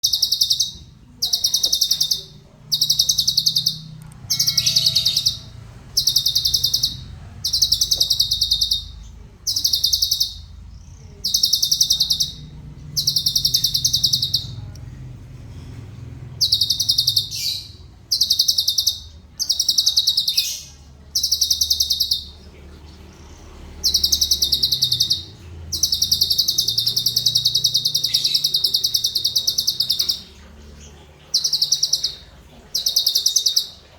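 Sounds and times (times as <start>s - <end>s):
songbird fast rolling trills: 0.0s - 14.7s, 23.8s - 33.9s
faint low hum: 0.0s - 33.9s.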